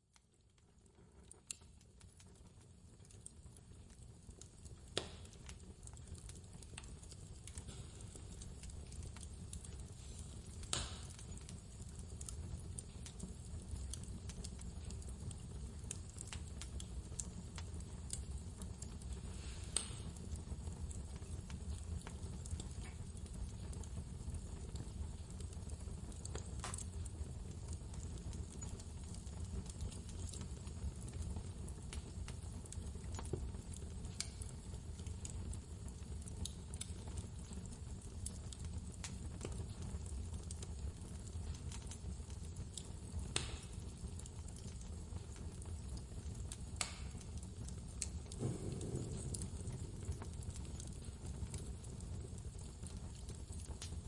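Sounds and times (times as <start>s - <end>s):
wood fire crackling and popping: 0.0s - 54.0s
low rumble of blizzard wind: 48.0s - 52.6s.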